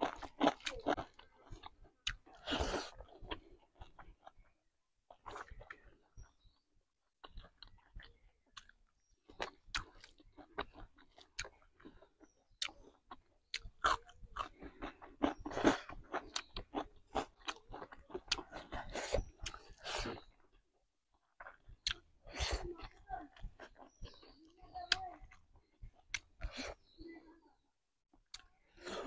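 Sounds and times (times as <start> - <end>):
wet mouth chewing clicks: 0.0 - 4.5, 7.2 - 20.5, 21.3 - 22.1, 22.8 - 27.0.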